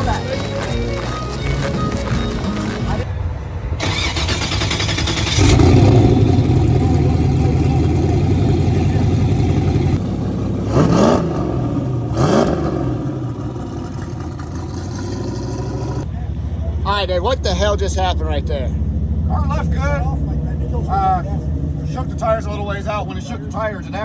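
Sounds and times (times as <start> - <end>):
drag car engine revving: 3.8 - 24.0.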